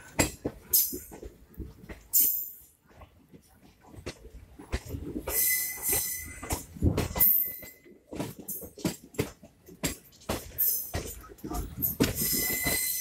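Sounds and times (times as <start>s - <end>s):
train wheels clattering over rails: 0.0s - 13.0s
thin high squeal: 5.3s - 6.5s, 12.2s - 13.0s.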